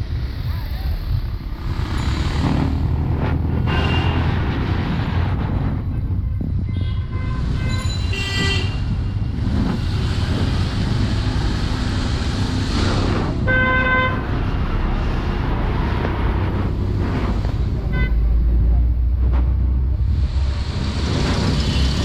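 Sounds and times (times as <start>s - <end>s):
traffic rumble: 0.0s - 22.0s
vehicle horns honking: 3.6s - 4.6s, 6.2s - 9.3s, 13.5s - 14.3s, 17.8s - 18.4s.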